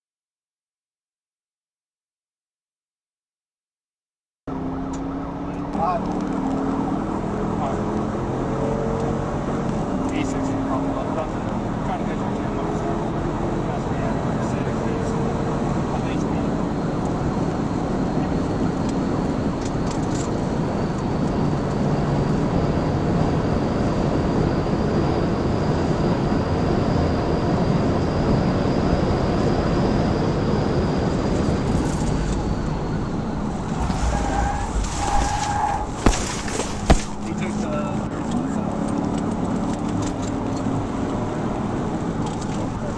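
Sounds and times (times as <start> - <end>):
car road and engine noise: 4.5 - 42.9
sharp knocks: 35.9 - 37.3.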